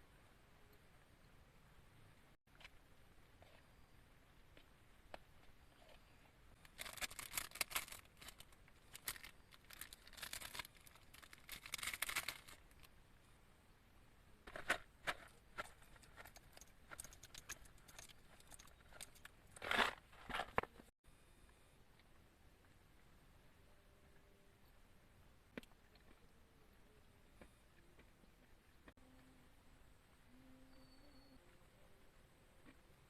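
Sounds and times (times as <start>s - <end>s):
crinkling and rustling: 4.5s - 12.9s, 14.4s - 20.9s.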